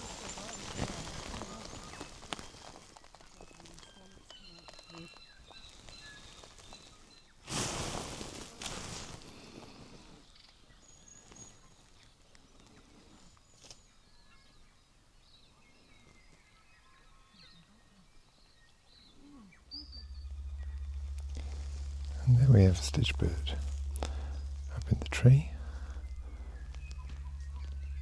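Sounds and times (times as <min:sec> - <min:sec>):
songbirds chirping and whistling: 0:00.0 - 0:28.0
low hum: 0:19.6 - 0:28.0.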